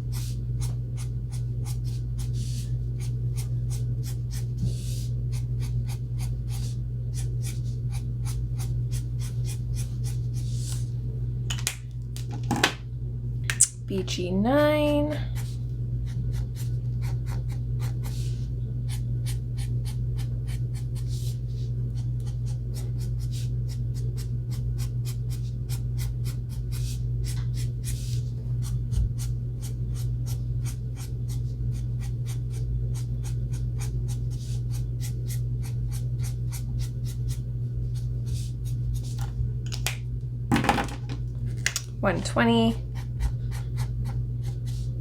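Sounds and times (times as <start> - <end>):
steady low hum: 0.0 - 45.0
marker scratching across paper: 0.1 - 10.8.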